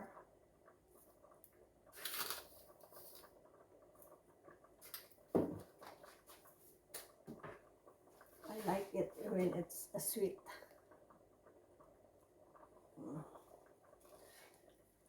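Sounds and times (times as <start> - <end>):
knock in kitchen: 5.3 - 5.7.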